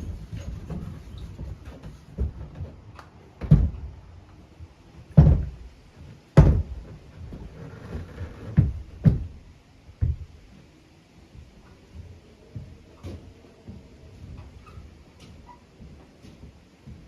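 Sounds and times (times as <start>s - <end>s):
dull thuds: 0.0s - 4.0s, 5.1s - 5.8s, 6.4s - 10.4s.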